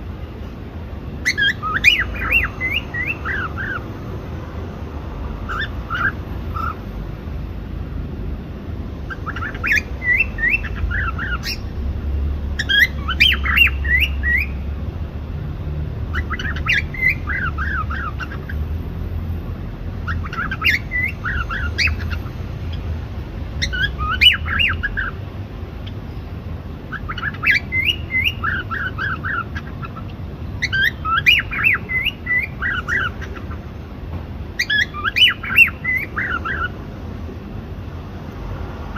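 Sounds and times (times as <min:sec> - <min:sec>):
cockatiel chirping and singing: 0:01.2 - 0:03.8, 0:05.4 - 0:06.8, 0:09.1 - 0:11.8, 0:12.5 - 0:14.7, 0:16.0 - 0:18.6, 0:19.9 - 0:22.9, 0:23.6 - 0:25.2, 0:26.9 - 0:33.6, 0:34.6 - 0:36.8.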